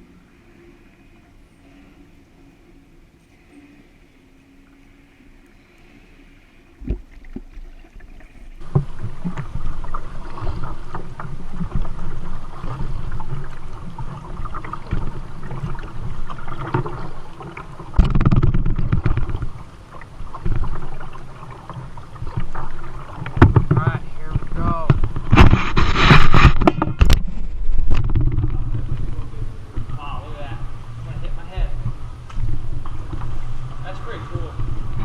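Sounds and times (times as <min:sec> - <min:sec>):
water splashing and sloshing: 0:00.0 - 0:35.0
paddle knocking against hull: 0:08.6 - 0:30.1.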